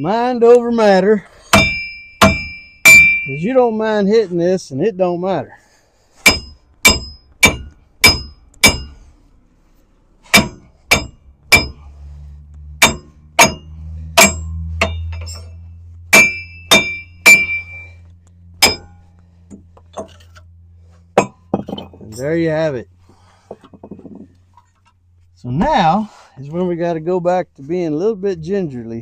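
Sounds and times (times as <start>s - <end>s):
low steady hum: 0.0s - 29.0s
hammer striking steel: 1.5s - 3.6s, 6.2s - 9.1s, 10.3s - 11.9s, 12.8s - 18.0s, 18.6s - 19.1s, 21.2s - 22.3s.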